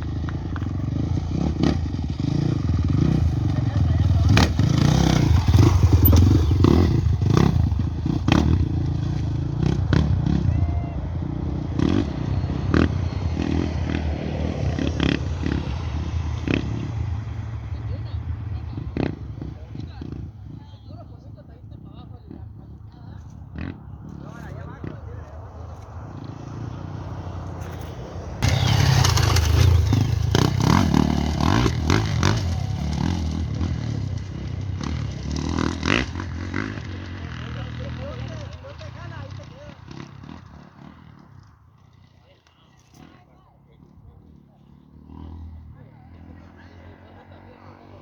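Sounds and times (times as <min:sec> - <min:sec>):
motorcycle engine rumbling: 0:00.0 - 0:48.0
sharp cracks: 0:28.4 - 0:33.0.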